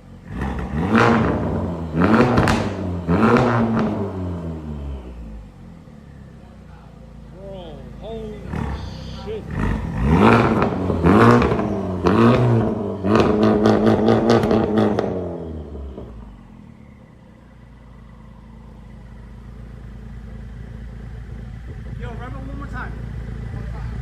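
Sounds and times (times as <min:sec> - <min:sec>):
car engine revving in blips: 0:00.0 - 0:05.6, 0:08.4 - 0:17.0
car engine idling: 0:00.0 - 0:24.0.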